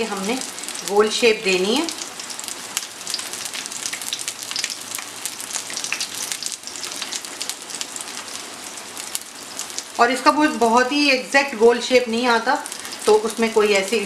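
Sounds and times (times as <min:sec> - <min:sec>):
oil sizzling in a frying pan: 0:00.0 - 0:14.0.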